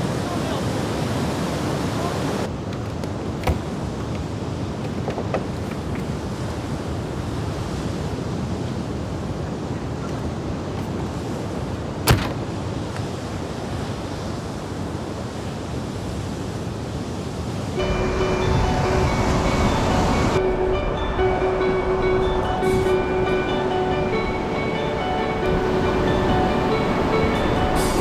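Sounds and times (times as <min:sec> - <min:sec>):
small waves washing on beach: 0:00.0 - 0:17.8.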